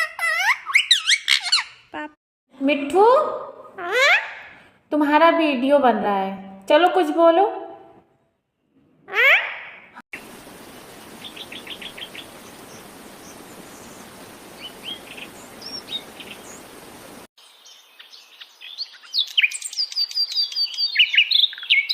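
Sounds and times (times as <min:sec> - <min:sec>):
parrot chirping: 0:00.0 - 0:01.9, 0:03.8 - 0:04.6, 0:09.1 - 0:09.8
background hiss: 0:10.2 - 0:18.1.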